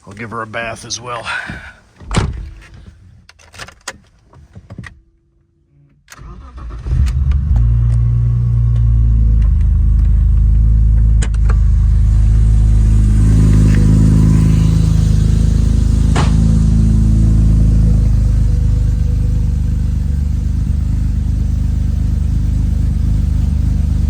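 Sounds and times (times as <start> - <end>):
car engine fast idle: 8.4 - 24.0.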